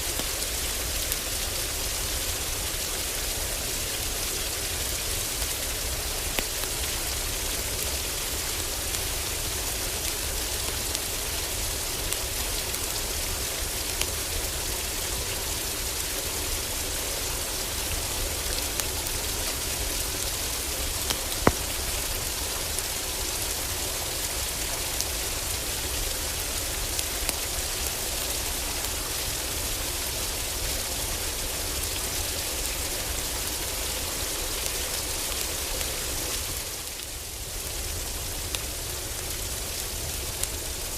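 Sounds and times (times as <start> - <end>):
heavy rain on a roof: 0.0 - 40.9
wood fire crackling: 4.9 - 29.8, 34.6 - 40.9.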